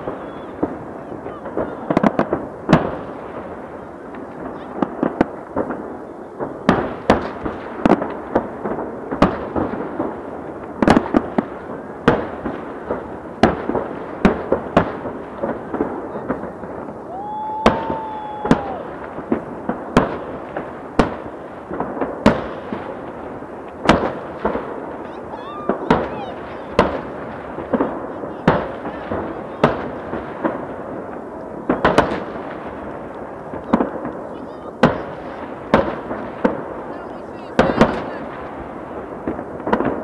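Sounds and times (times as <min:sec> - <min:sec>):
continuous background noise: 0:00.0 - 0:40.0
fireworks bursting with sharp bangs: 0:00.0 - 0:40.0.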